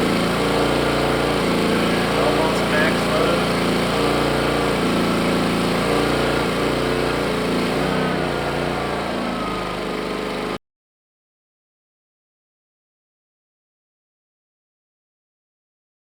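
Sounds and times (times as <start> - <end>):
generator engine running: 0.0 - 10.6.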